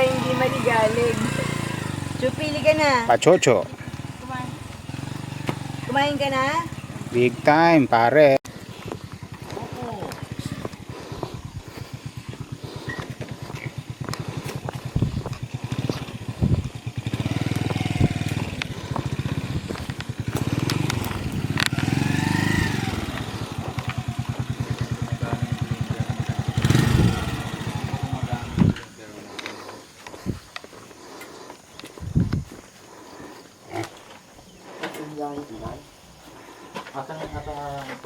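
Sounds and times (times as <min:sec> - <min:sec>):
small engine idling: 0:00.0 - 0:38.0.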